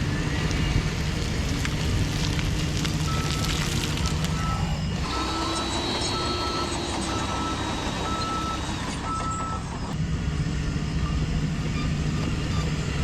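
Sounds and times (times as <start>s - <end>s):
low engine rumble: 0.0s - 13.0s
reversing alarm beeping: 3.0s - 10.0s.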